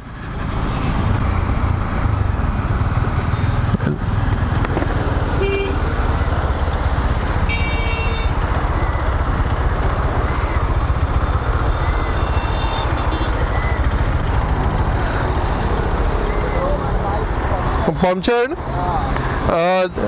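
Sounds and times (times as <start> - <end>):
motorcycle engine rumble: 0.1 - 17.6
vehicle horns honking: 5.4 - 5.9, 7.4 - 8.4, 12.2 - 13.5.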